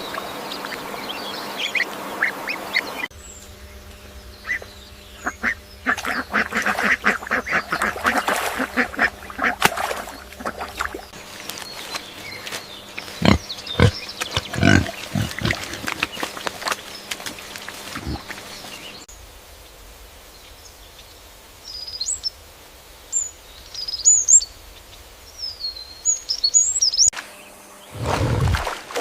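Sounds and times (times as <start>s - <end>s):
piglet grunting and snuffling: 13.0s - 18.7s, 28.0s - 29.0s.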